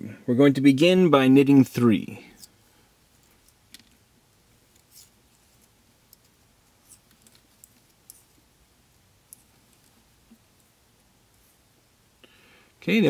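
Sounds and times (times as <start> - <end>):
knitting needles clicking: 4.7 - 8.4.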